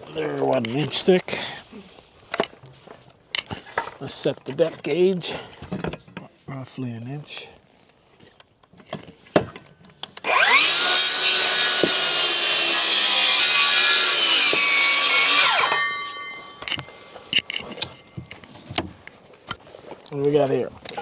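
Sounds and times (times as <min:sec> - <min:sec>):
circular saw cutting wood: 0:10.2 - 0:18.0.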